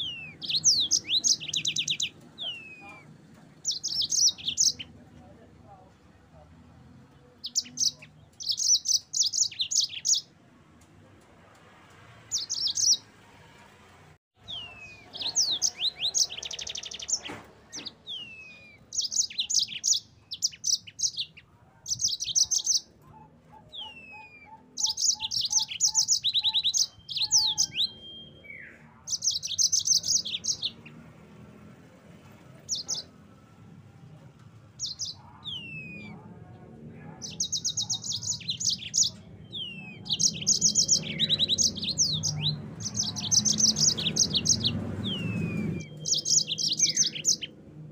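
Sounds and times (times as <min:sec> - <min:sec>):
canary trilling and whistling: 0:00.0 - 0:04.9, 0:14.4 - 0:30.9, 0:34.8 - 0:36.2, 0:37.2 - 0:47.5.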